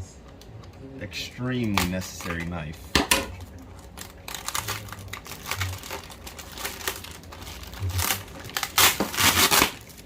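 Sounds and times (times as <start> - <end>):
plastic packaging crinkling: 1.5 - 10.0
knife cutting package: 4.0 - 10.0.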